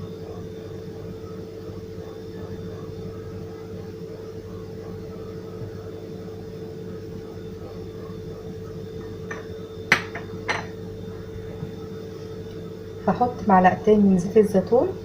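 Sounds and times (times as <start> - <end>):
low steady hum: 0.0 - 15.0
dishes clinking together: 9.2 - 10.8.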